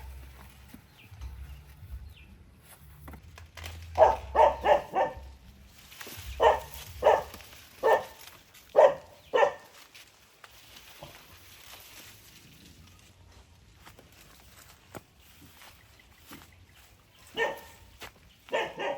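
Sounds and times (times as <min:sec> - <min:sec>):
dog barking: 0:04.0 - 0:05.4, 0:06.3 - 0:09.7, 0:17.3 - 0:17.9, 0:18.5 - 0:18.9.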